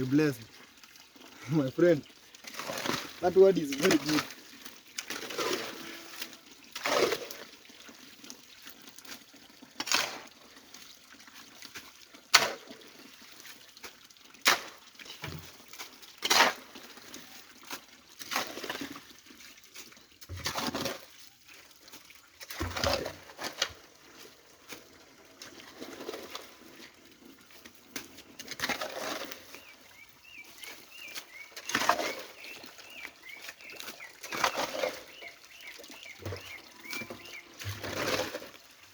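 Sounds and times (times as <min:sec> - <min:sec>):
splashing strokes in stream water: 0:02.4 - 0:07.6, 0:09.8 - 0:10.4, 0:11.6 - 0:14.8, 0:15.4 - 0:19.8, 0:22.0 - 0:26.9, 0:27.6 - 0:38.9.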